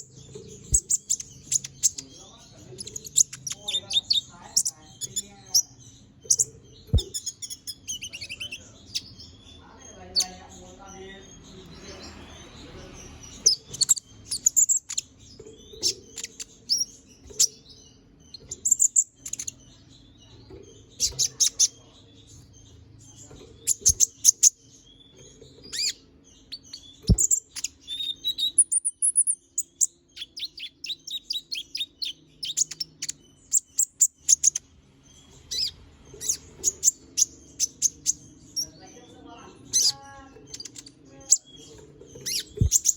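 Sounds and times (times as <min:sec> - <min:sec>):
faint low hum: 0:00.0 - 0:28.5
sunbird chirping and trilling: 0:00.0 - 0:42.9.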